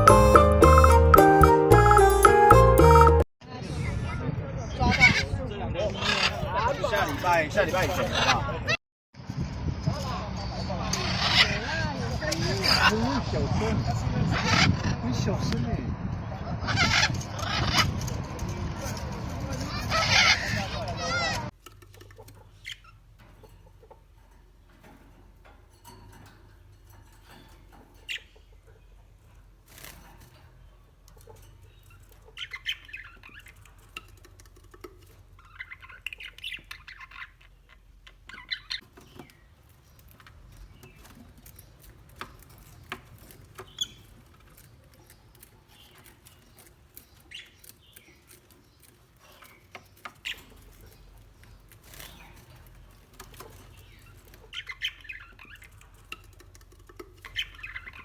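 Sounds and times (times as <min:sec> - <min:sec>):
parrots squawking and chirping: 0:06.0 - 0:08.8, 0:10.8 - 0:13.1, 0:14.2 - 0:15.1, 0:16.4 - 0:24.5, 0:25.8 - 0:58.0
clicks and taps: 0:21.5 - 0:22.5.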